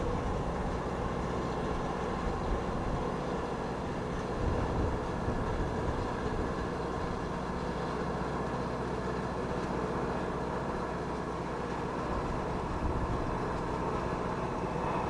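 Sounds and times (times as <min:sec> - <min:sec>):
wind buffeting microphone: 0:00.0 - 0:07.4, 0:12.1 - 0:15.0
jet engine noise: 0:11.8 - 0:15.0.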